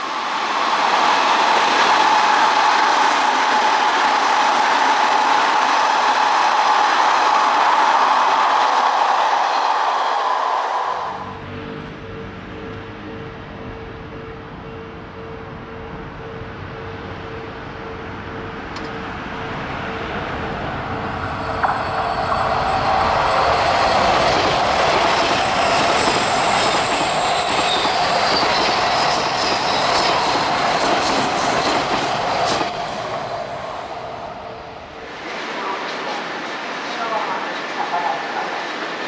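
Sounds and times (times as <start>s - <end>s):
electric train rolling past: 0.0s - 39.0s
high wheel squeal: 19.4s - 34.8s.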